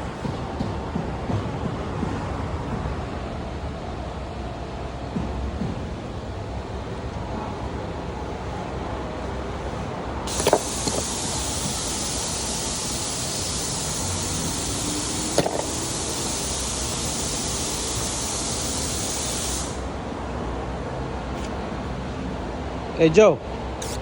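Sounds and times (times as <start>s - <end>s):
click and knock: 10.3s - 11.2s, 15.3s - 15.9s
pressurised spray hissing: 10.3s - 20.0s, 23.8s - 24.0s.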